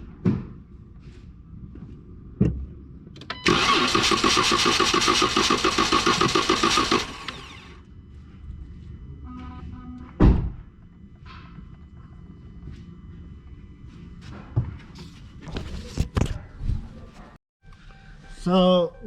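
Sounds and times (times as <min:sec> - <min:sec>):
car starter cranking engine: 0:03.2 - 0:07.8
loud thump: 0:10.2 - 0:10.6.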